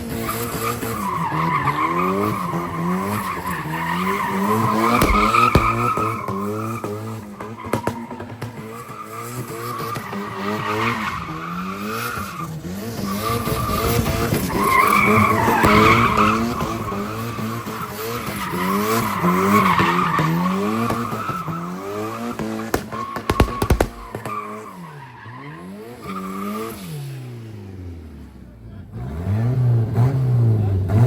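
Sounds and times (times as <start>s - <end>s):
tyres squealing on pavement: 0.0s - 27.2s
car engine revving: 0.0s - 31.0s
sharp clicks: 22.8s - 24.3s.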